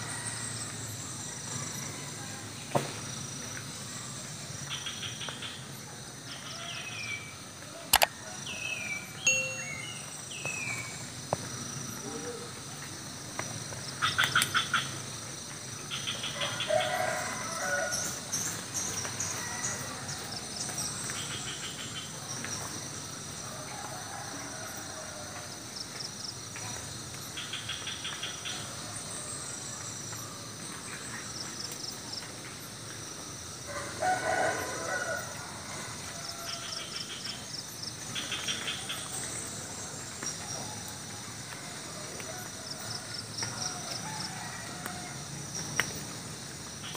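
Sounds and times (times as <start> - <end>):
crickets chirring: 0.0 - 46.9
rooster crowing: 16.4 - 18.2, 23.5 - 25.5, 33.7 - 36.9, 41.8 - 45.4.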